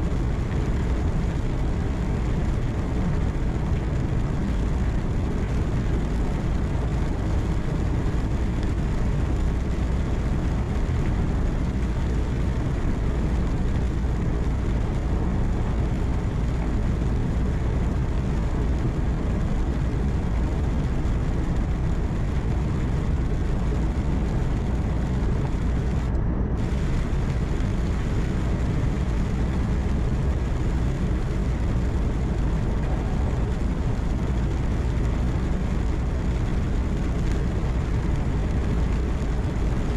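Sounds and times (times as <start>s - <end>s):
tyre and road noise: 0.0s - 39.9s
truck engine hum: 11.2s - 37.4s.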